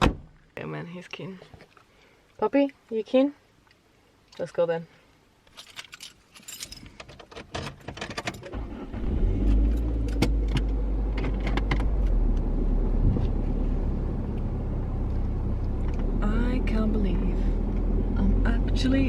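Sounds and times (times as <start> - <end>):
keys jangling: 5.5 - 7.2
car engine starting and running: 8.1 - 19.0.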